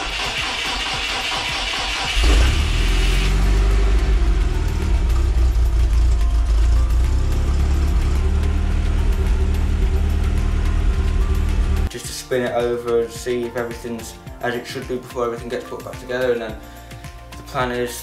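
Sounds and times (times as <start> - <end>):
engine cranked on starter: 0.0 - 7.4
engine running: 0.0 - 11.9.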